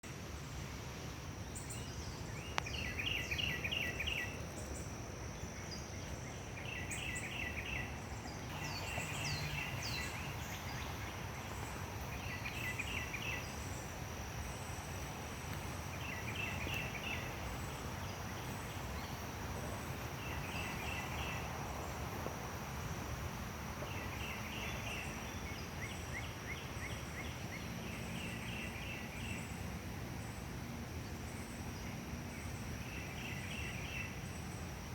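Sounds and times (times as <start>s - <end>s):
high insect buzz: 0.9s - 25.9s.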